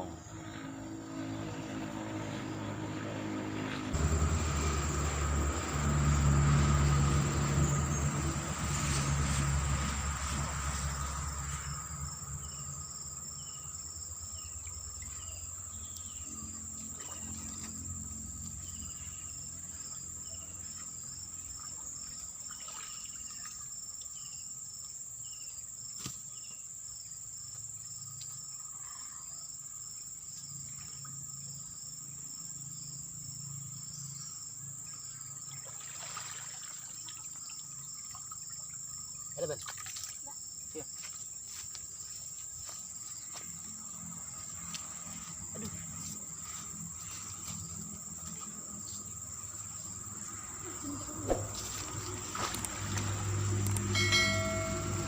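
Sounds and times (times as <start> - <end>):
low engine sound: 0.0 - 21.8, 43.3 - 55.0
insects buzzing: 0.0 - 55.0
cricket-like chirping: 4.0 - 55.0.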